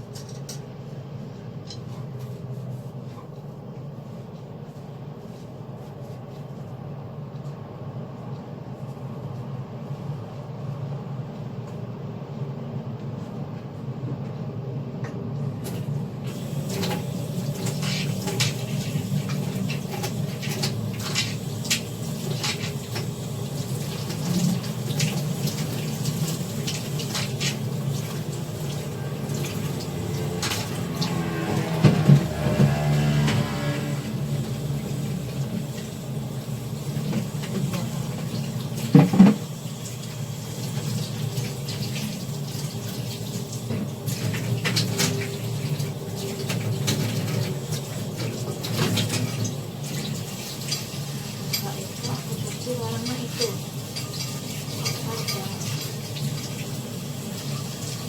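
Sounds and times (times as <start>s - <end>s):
water running in a sink: 15.6s - 58.0s
kitchen utensils clinking: 50.0s - 56.4s.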